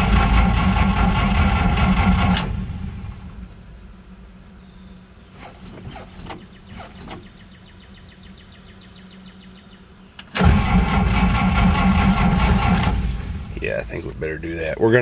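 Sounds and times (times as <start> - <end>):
engine starter cranking: 0.0 - 2.9, 10.2 - 14.0.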